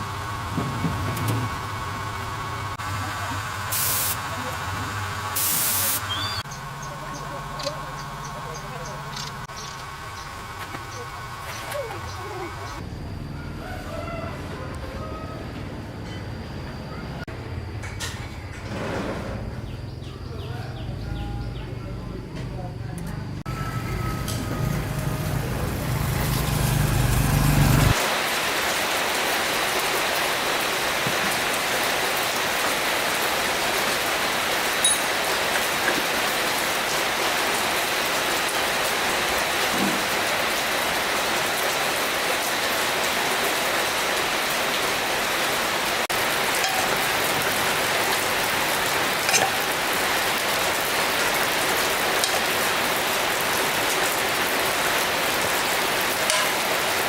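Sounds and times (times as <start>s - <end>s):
rushing water hiss: 2.2s - 6.4s, 27.9s - 57.0s.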